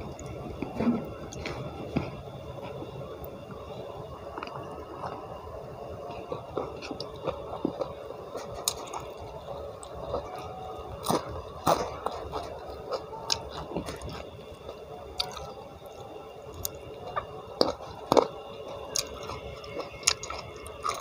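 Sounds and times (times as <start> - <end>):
wet chewing mouth sounds: 16.6 - 21.0.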